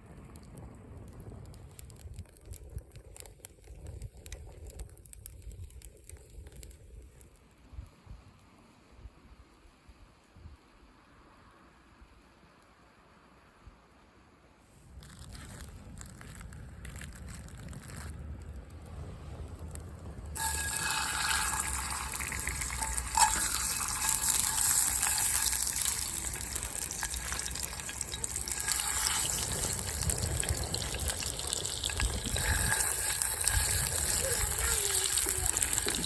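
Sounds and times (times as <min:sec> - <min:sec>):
food sizzling in a skillet: 0:20.4 - 0:36.0.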